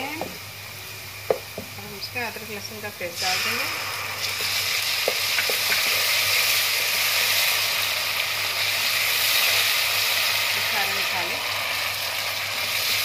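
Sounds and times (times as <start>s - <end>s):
onions sizzling in oil: 0.0s - 13.0s
spatula knocking pan: 5.0s - 6.0s.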